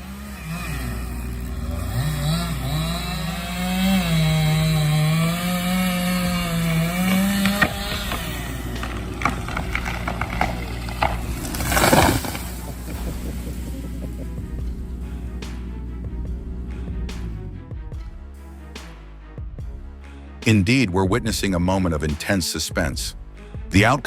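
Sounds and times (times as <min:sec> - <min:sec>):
chainsaw cutting: 0:00.0 - 0:17.6
sharp knocks: 0:03.3 - 0:14.8.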